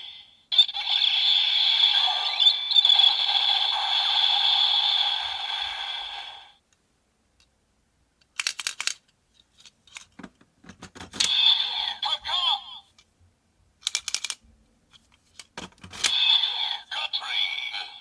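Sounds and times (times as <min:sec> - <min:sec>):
plastic toy parts clicking: 0:08.2 - 0:11.5, 0:13.8 - 0:16.3
scraping of toy parts: 0:08.3 - 0:12.0, 0:13.8 - 0:16.8.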